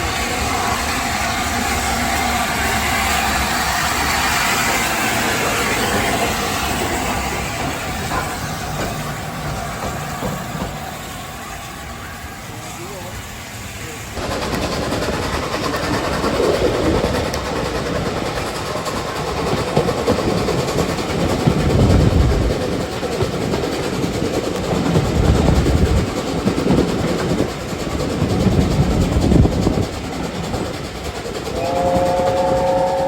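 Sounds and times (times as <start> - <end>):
steam train rumbling: 0.0 - 33.0
locomotive chime whistle: 31.5 - 33.0.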